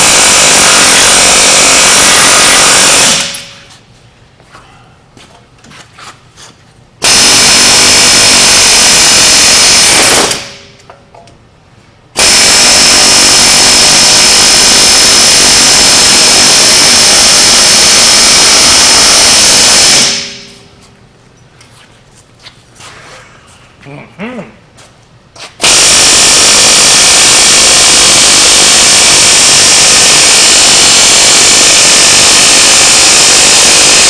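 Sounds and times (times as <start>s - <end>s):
power tool running hard: 0.0s - 3.5s, 7.0s - 10.6s, 12.2s - 20.5s, 25.6s - 34.0s.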